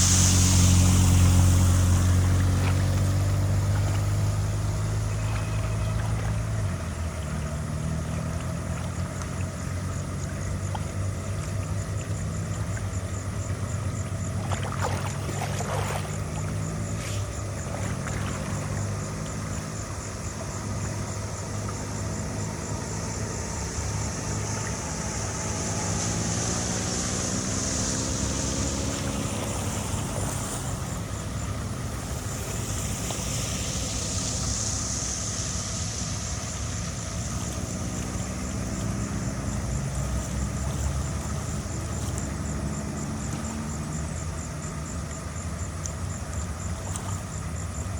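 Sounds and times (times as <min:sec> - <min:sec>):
high hiss: 0:00.0 - 0:08.3, 0:16.1 - 0:47.9
machine engine running: 0:00.0 - 0:47.9.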